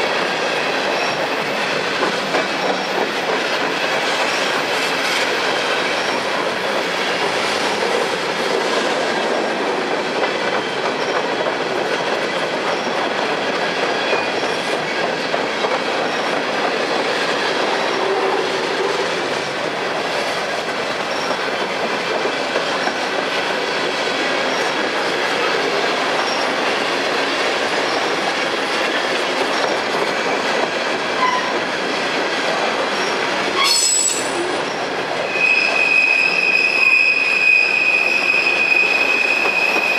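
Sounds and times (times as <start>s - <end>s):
train wheels rumbling on rails: 0.0s - 39.9s
high wheel squeal: 33.0s - 39.9s.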